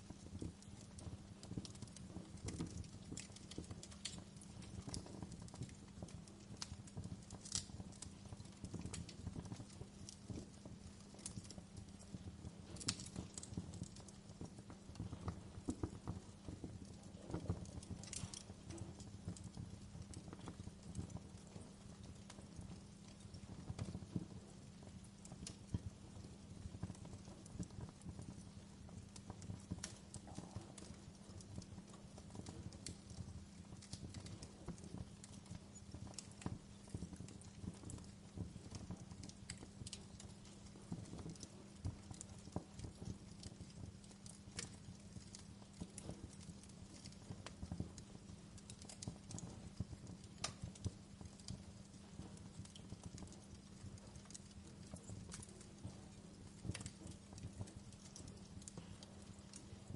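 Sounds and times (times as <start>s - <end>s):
faint steady hum: 0.0s - 59.9s
rumble of burning logs: 0.0s - 59.9s
wood fire crackling: 0.0s - 59.9s.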